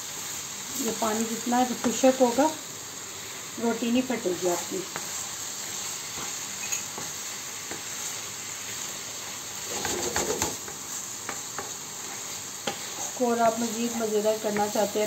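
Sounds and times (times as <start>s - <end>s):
meat sizzling in frying pan: 0.0s - 15.0s
wooden spatula scraping: 9.6s - 14.9s.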